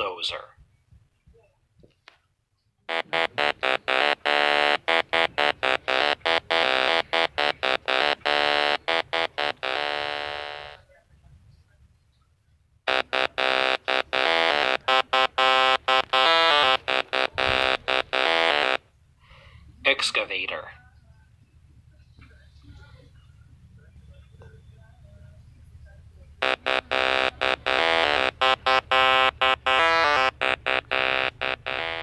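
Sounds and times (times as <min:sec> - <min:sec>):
chiptune tones: 0:02.9 - 0:10.8, 0:12.9 - 0:18.8, 0:26.4 - 0:32.0.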